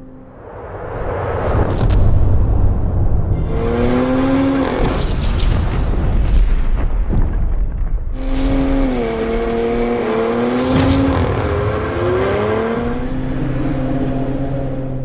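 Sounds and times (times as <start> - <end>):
pickup engine accelerating: 8.2 - 15.0.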